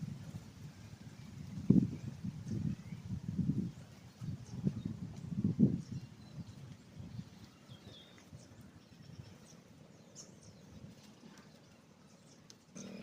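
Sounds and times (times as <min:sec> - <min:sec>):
bird chirps: 0:05.8 - 0:13.0.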